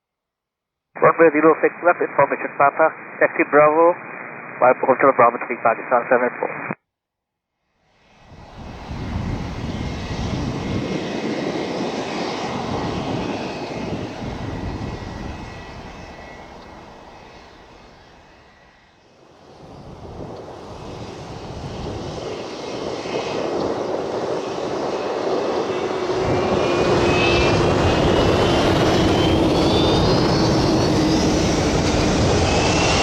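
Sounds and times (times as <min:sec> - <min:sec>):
jet engines running: 0:01.0 - 0:06.7, 0:08.0 - 0:33.0
thin high engine whine: 0:08.1 - 0:33.0.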